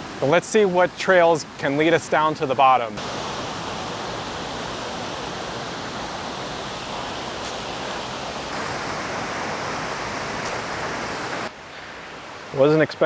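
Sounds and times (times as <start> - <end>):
waterfall pouring: 2.9 - 11.5.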